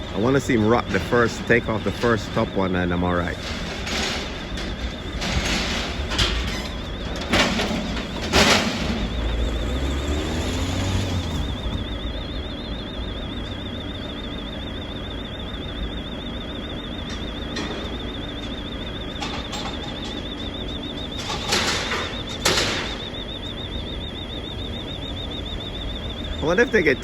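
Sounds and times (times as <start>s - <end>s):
lorry engine idling: 8.0s - 14.7s
faint wavering high tone: 8.8s - 27.0s.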